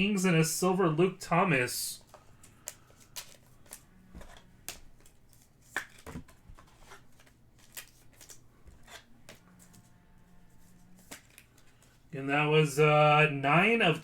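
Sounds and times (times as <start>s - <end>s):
trading cards clicking and snapping: 2.0s - 9.9s, 10.9s - 12.0s.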